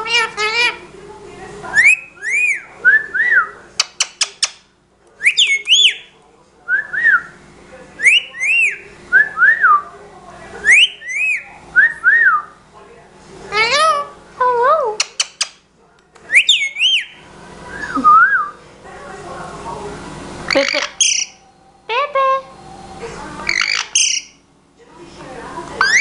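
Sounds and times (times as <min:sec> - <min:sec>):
bird whistling a phrase: 0:01.7 - 0:03.6, 0:05.2 - 0:07.4, 0:08.0 - 0:09.8, 0:10.6 - 0:12.6, 0:16.3 - 0:18.6, 0:20.5 - 0:24.4, 0:25.8 - 0:26.0.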